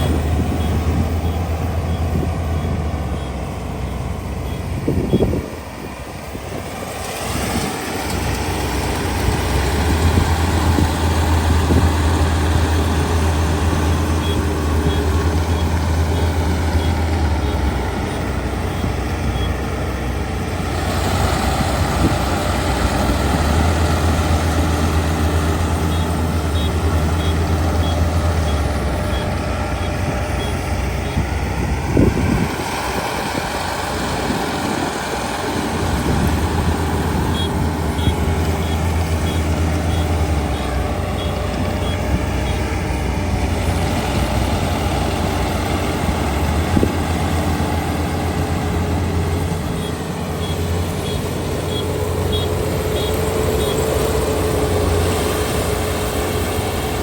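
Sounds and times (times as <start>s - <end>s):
faint high beeps: 0.0s - 5.4s, 14.1s - 19.7s, 25.9s - 31.3s, 49.7s - 53.9s
harvester engine droning: 0.0s - 57.0s.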